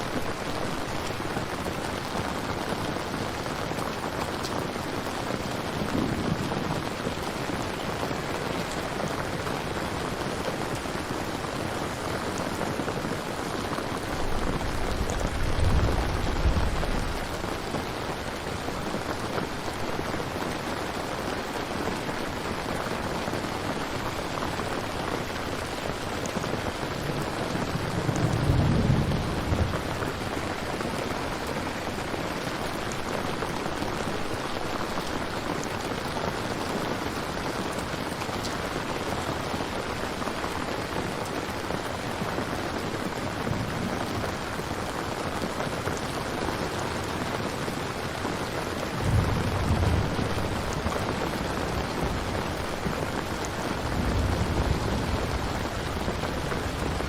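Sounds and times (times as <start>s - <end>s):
rain falling: 0.0s - 57.0s
thunder rumbling: 5.4s - 8.3s, 14.0s - 18.3s, 26.6s - 30.7s, 48.8s - 57.0s.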